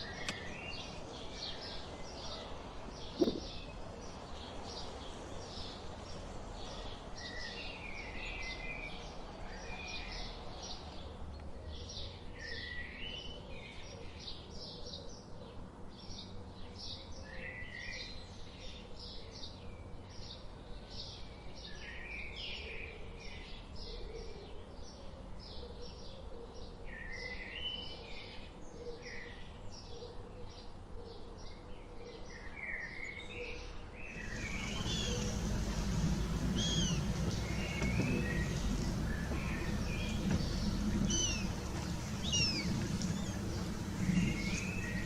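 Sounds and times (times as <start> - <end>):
low rumbling noise: 0.0 - 4.5, 34.1 - 45.0
sweeping bird calls: 0.0 - 4.6, 34.0 - 45.0
small birds chirping and trilling: 0.0 - 30.8, 31.4 - 45.0.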